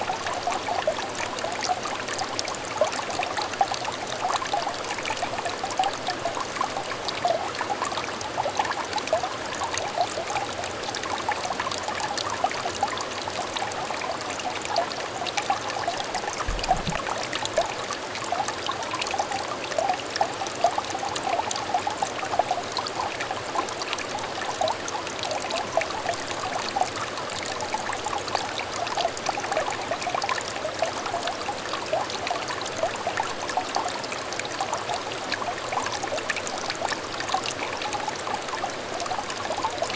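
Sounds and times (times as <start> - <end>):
stream trickling over stones: 0.0 - 39.9
low thump: 16.4 - 17.1.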